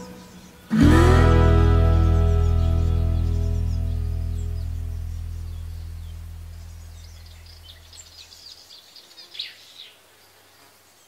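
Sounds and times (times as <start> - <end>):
low background music: 0.0 - 6.9
small birds chirping: 0.0 - 11.0.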